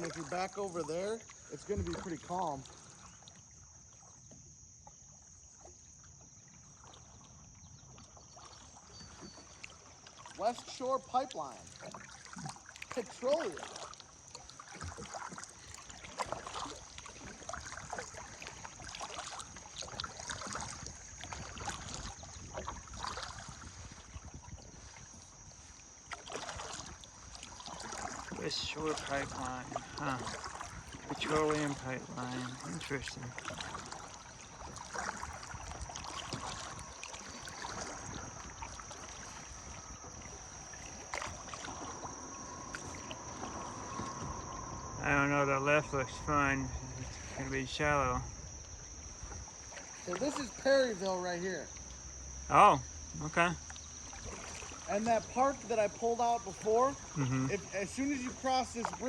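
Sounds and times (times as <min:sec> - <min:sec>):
paddle splashing in water: 0:00.0 - 0:59.0
faint high-pitched tone: 0:39.3 - 0:48.3.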